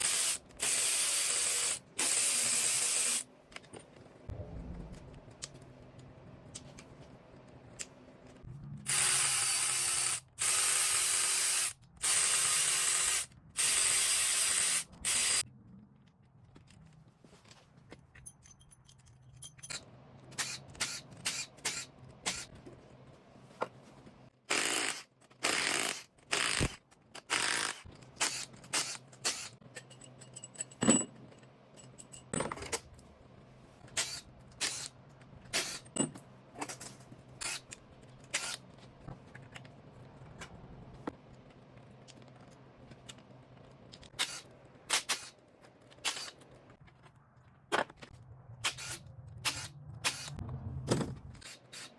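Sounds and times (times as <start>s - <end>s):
metal tools clinking and scraping: 18.0s - 19.9s, 28.5s - 32.9s.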